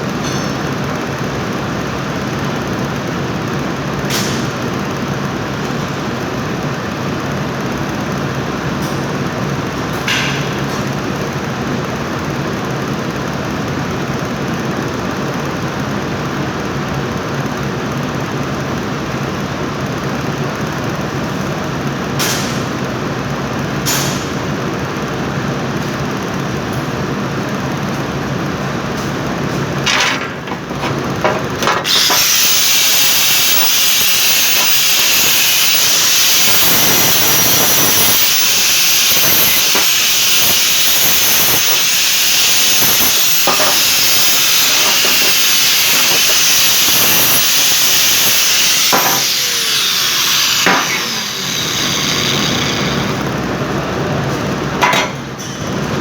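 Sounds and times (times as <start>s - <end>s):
angle grinder grinding steel: 31.8s - 53.4s
grinder disc winding down: 31.8s - 53.4s.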